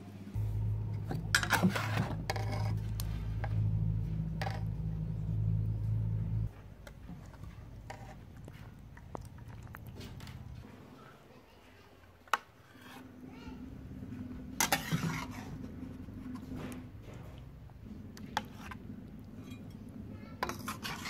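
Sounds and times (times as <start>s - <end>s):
steady low hum: 0.3s - 10.8s, 13.0s - 21.0s
metal spoon scraping a wok: 1.1s - 3.7s, 4.3s - 4.8s, 7.2s - 8.2s, 12.6s - 13.1s, 14.5s - 16.4s, 18.1s - 18.8s, 19.4s - 21.0s.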